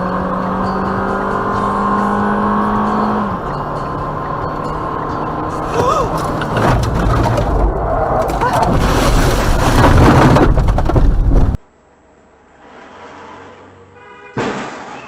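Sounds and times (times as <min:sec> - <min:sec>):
car road and engine noise: 0:00.0 - 0:15.0
knocks and rattles: 0:05.7 - 0:11.6.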